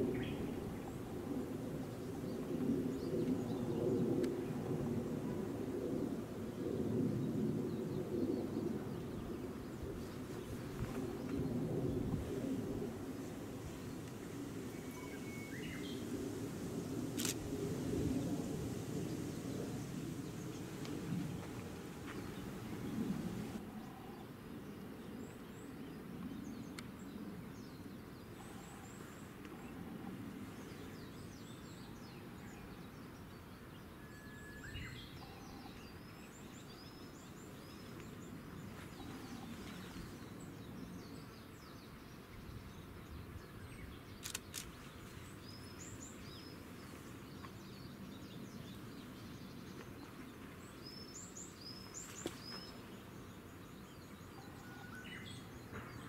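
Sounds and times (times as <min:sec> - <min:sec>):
low background rumble: 0:11.1 - 0:23.6
small birds chirping: 0:36.7 - 0:54.5
sharp clicks: 0:44.2 - 0:44.7.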